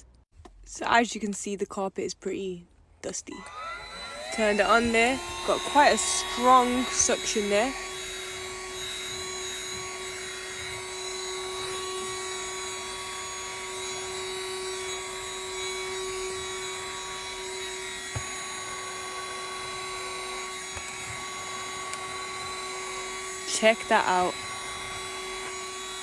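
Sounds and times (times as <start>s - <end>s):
handheld vacuum running: 3.3s - 26.0s.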